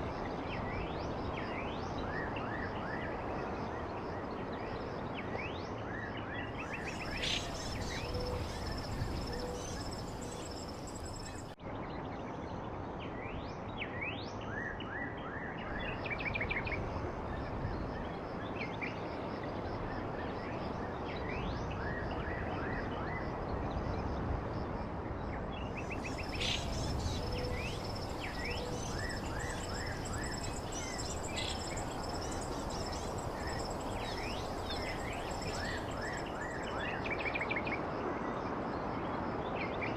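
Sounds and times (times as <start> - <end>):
songbirds chirping and trilling: 0.0 - 12.8, 25.4 - 37.9
steady background hiss: 6.6 - 11.6, 25.5 - 37.7
thin steady high tone: 26.1 - 36.7.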